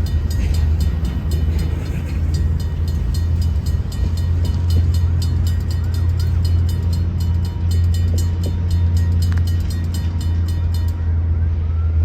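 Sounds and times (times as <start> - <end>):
wheels clicking on rail: 0.0 - 11.3
freight train rumble: 0.0 - 12.0.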